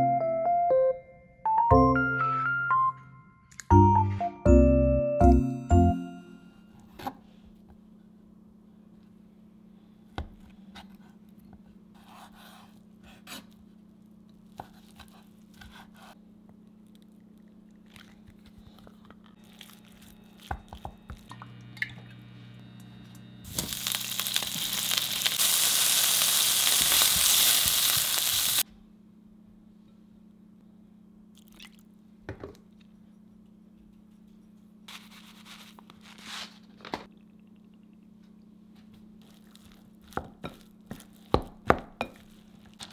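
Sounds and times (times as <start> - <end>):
low hum: 16.5 - 25.9
loud steady hiss: 23.4 - 28.6.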